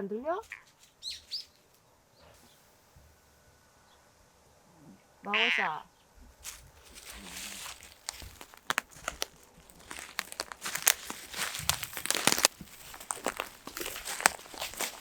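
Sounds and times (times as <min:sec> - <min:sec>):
crunching crackling rustles: 0:06.4 - 0:15.0.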